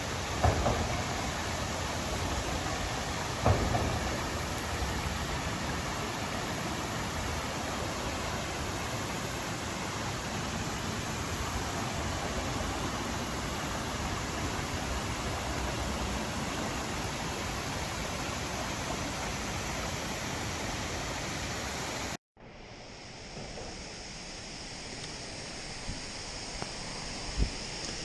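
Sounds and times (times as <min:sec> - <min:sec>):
creek water and waterfall rushing: 0:00.0 - 0:22.2.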